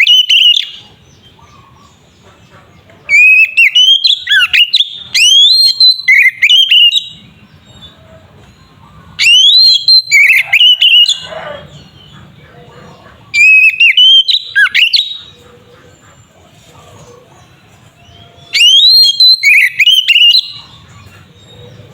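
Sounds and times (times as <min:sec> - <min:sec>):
songbird whistles and harsh notes: 0:00.0 - 0:00.9, 0:03.1 - 0:07.3, 0:09.2 - 0:11.8, 0:13.3 - 0:15.4, 0:18.4 - 0:21.1.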